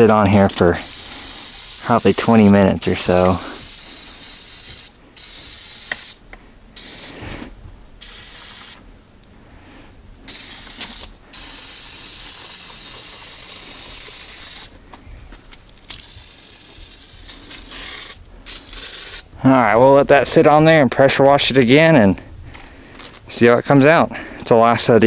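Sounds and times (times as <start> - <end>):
aerosol can spraying: 0.6 - 6.2, 6.8 - 7.4, 8.0 - 8.8, 10.3 - 14.8, 16.0 - 19.3.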